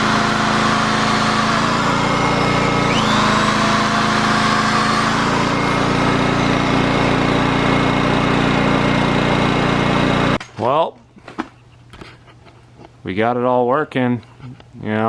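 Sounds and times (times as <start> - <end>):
generator engine running: 0.0 - 10.7.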